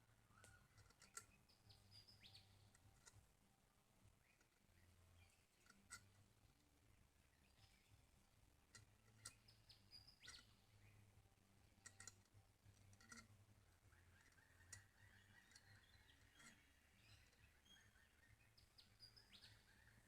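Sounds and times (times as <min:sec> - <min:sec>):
faint clicks: 0:11.8 - 0:13.3.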